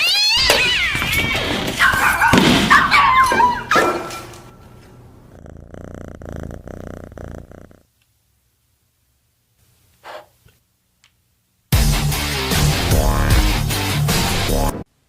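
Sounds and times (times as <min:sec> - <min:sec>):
cat purring: 0:05.0 - 0:08.0.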